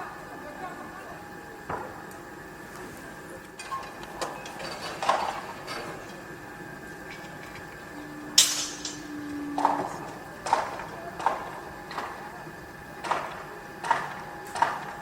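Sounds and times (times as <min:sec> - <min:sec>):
construction site din: 0:00.0 - 0:15.0
low steady hum: 0:00.0 - 0:15.0
sharp metal bang: 0:08.4 - 0:09.1
metal clanks and knocks: 0:08.4 - 0:12.1.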